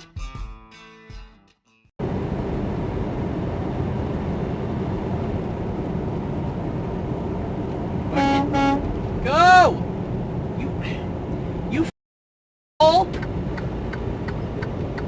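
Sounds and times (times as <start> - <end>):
vehicle engine and road noise: 2.0 - 12.0, 12.8 - 15.0
horn beeps: 8.1 - 8.9.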